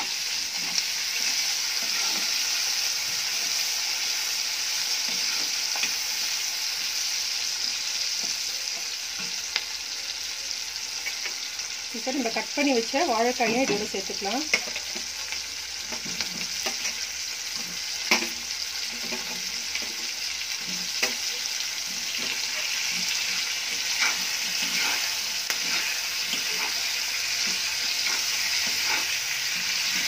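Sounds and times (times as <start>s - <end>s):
oil sizzling in a pan: 0.0s - 30.0s
spatula scraping and knocking pan: 17.6s - 30.0s.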